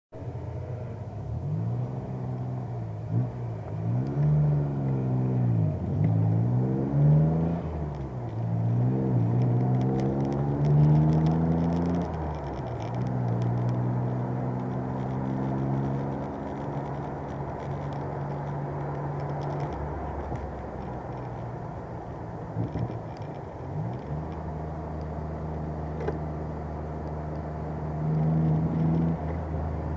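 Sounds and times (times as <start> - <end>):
race car engine revving: 1.3 - 21.4.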